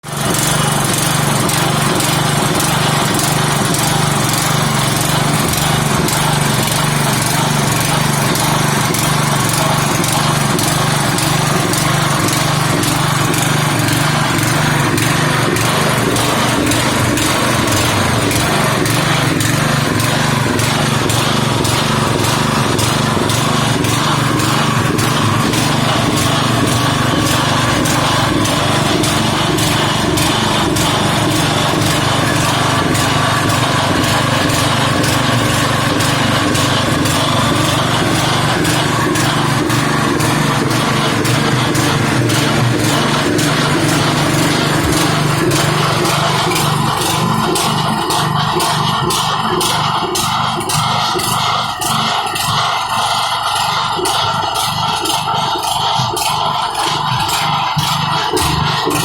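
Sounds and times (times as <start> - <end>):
small engine running steadily: 0.0 - 59.0.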